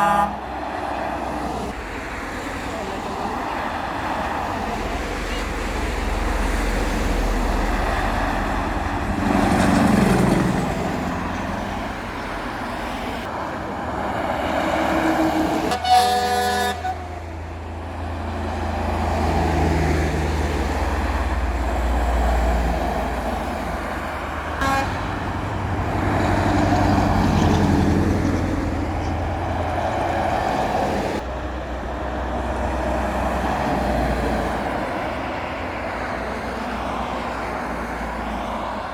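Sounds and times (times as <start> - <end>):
truck horn blast: 0.0 - 0.4, 15.7 - 17.4, 24.6 - 25.4
heavy trucks driving past: 0.0 - 38.9.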